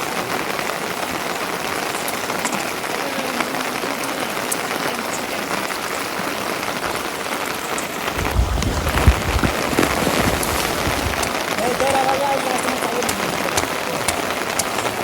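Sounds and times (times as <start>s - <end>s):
steady rain hissing: 0.0s - 15.0s
low rumble: 8.1s - 11.6s.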